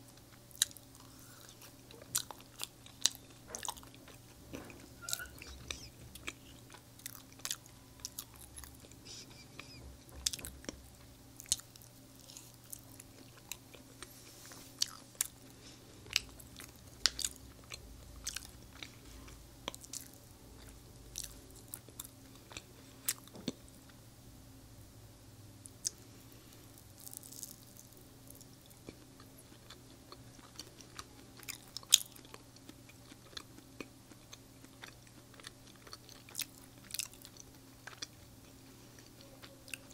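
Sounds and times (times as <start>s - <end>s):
chewing and biting: 0.2s - 10.8s, 14.7s - 15.4s, 16.1s - 23.6s, 27.0s - 39.9s.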